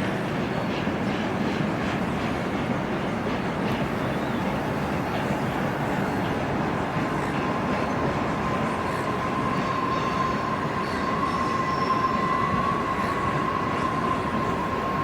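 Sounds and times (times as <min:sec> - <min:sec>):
train rumbling past: 0:00.0 - 0:15.0
high wheel squeal: 0:07.1 - 0:15.0.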